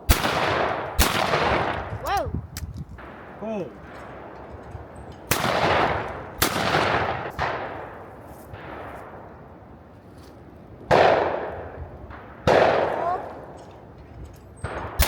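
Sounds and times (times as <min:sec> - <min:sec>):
shotgun shots echoing: 0:00.0 - 0:02.0, 0:03.0 - 0:09.6, 0:10.9 - 0:13.9.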